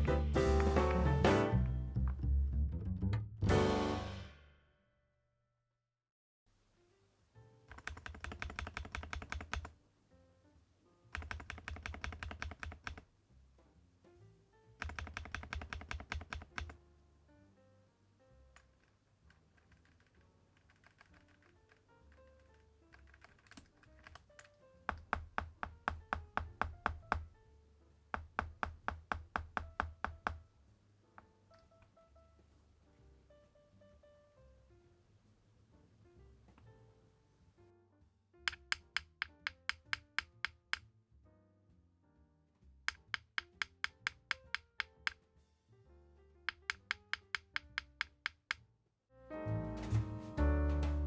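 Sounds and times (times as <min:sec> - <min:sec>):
soft background music: 0:00.0 - 0:04.4, 0:06.8 - 0:18.9, 0:20.1 - 0:42.9, 0:49.2 - 0:51.0
background music: 0:00.0 - 0:04.6, 0:49.2 - 0:51.0
mechanical keyboard typing: 0:07.7 - 0:09.7, 0:11.1 - 0:13.1, 0:14.8 - 0:16.8, 0:18.6 - 0:27.4, 0:28.2 - 0:30.4, 0:38.5 - 0:40.8, 0:42.9 - 0:45.2, 0:46.5 - 0:48.6.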